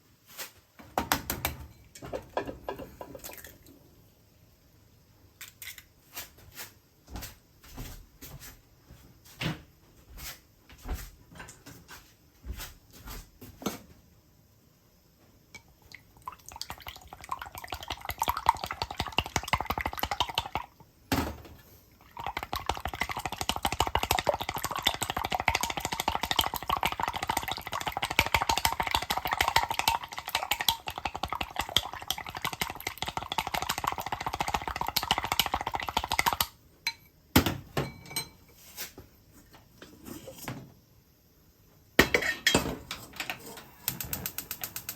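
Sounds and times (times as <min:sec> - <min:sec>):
kitchen utensils and dishes clattering: 0:00.9 - 0:03.5, 0:36.9 - 0:38.6, 0:39.8 - 0:40.7, 0:42.0 - 0:44.9.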